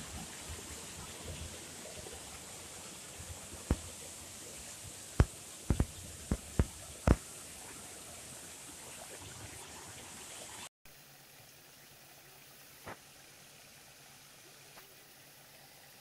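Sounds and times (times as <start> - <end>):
floodwater flowing: 0.0 - 16.0
sharp low thumps: 5.2 - 7.2.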